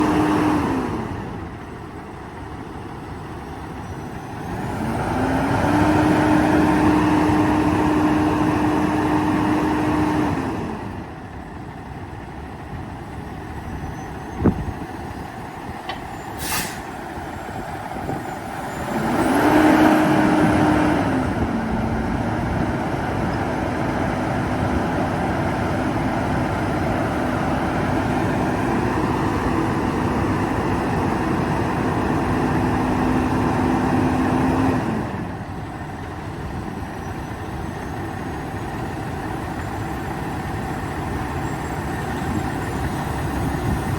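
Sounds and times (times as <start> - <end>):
diesel truck engine idling and revving: 0.0 - 43.9
short hiss: 16.3 - 17.0.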